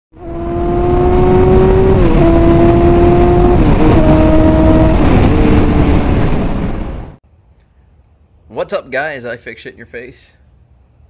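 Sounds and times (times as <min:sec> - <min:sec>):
motorcycle engine accelerating: 0:00.1 - 0:07.2.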